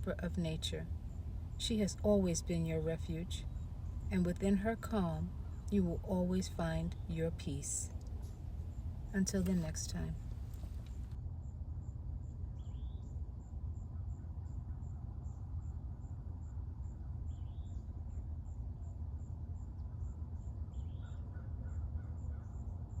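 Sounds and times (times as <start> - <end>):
crickets chirping: 0.0 - 11.2
steady low rumble: 0.0 - 20.8.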